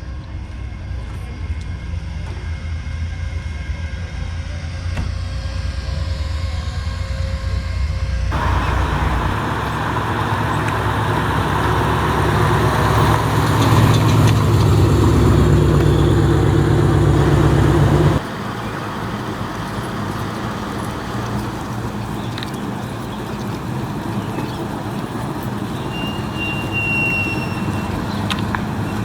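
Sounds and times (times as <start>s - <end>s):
car engine running: 8.3s - 25.8s.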